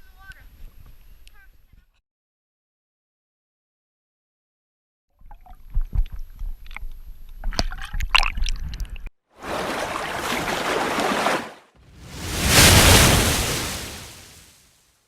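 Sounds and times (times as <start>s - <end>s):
water splashing and sloshing: 9.4s - 14.6s
steady rushing noise: 11.9s - 14.5s.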